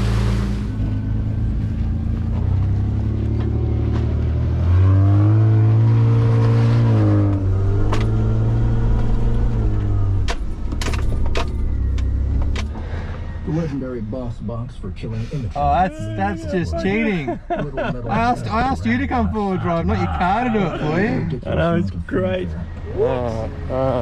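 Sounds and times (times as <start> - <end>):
off-road vehicle engine revving: 0.0 - 24.0
sharp knocks and rattles: 10.2 - 12.9.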